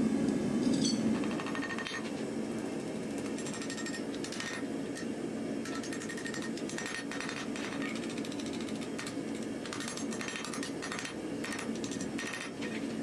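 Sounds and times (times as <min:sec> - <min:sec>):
workshop machine rattling: 0:05.7 - 0:13.0.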